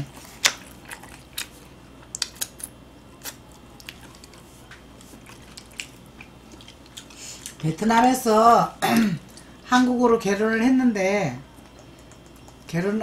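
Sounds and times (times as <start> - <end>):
wet chewing clicks and smacks: 0.0 - 7.6, 11.5 - 12.7
low room hum: 0.0 - 13.0.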